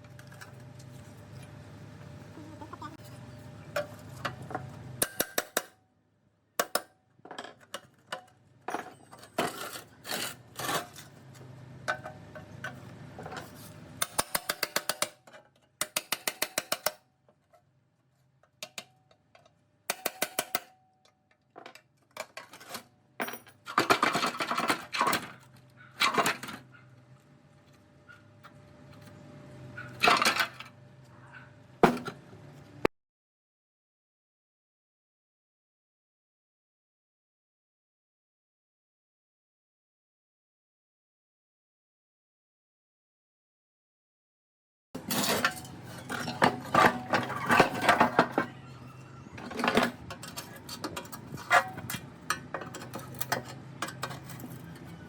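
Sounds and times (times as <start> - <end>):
metal tools clinking and knocking: 7.3 - 11.1, 21.6 - 25.4, 45.0 - 55.0
metal clatter: 45.0 - 48.7.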